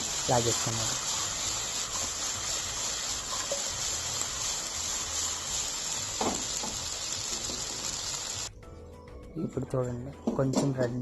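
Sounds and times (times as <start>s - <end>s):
chicken sizzling in a pan: 0.0s - 8.5s.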